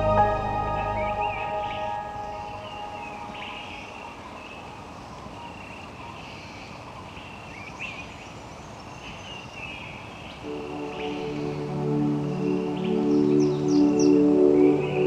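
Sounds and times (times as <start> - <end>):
soft ambient music: 0.0 - 4.9, 10.4 - 15.0
rainforest hiss: 0.0 - 15.0.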